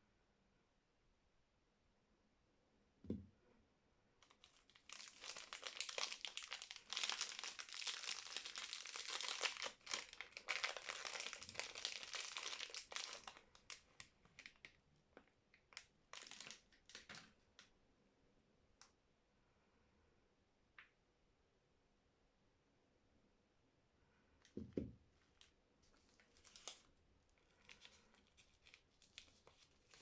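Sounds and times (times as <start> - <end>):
wrapper crinkling: 4.2 - 17.4, 25.3 - 30.0.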